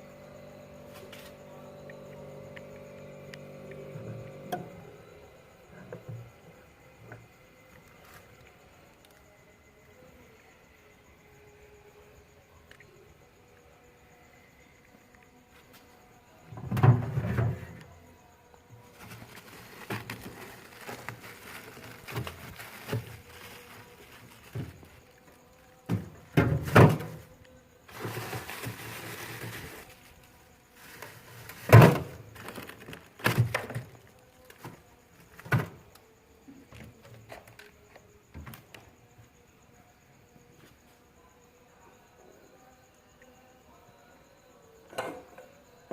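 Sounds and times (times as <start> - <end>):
knocks and thuds on refrigerator: 16.5 - 17.6, 25.9 - 27.2, 31.6 - 32.2.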